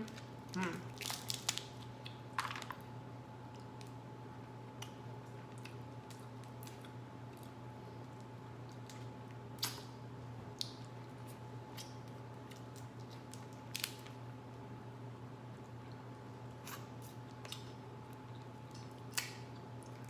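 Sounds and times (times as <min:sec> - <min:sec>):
steady low hum: 0:00.0 - 0:20.0
seafood shells cracking: 0:00.9 - 0:02.8, 0:12.6 - 0:14.2.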